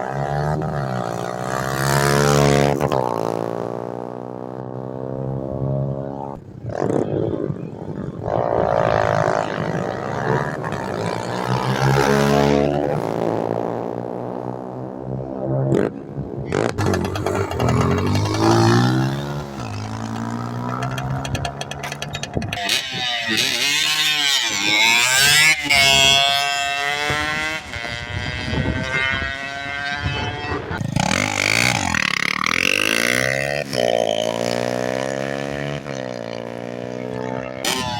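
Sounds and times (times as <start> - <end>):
motorcycle engine revving: 0.0 - 7.4, 8.0 - 37.9.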